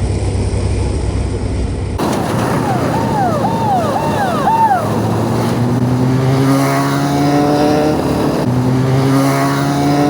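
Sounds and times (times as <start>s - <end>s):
motorcycle engine revving: 2.0s - 10.0s.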